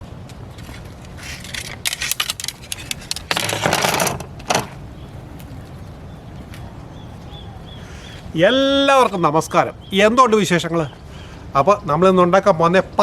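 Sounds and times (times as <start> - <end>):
rapid clicking and clattering: 1.4 - 4.7.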